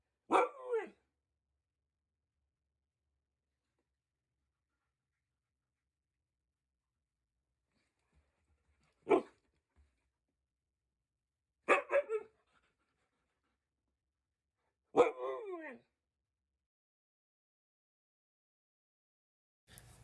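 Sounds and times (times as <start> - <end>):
dog barking: 0.3 - 1.0, 9.0 - 9.4, 11.7 - 12.3, 14.9 - 15.6.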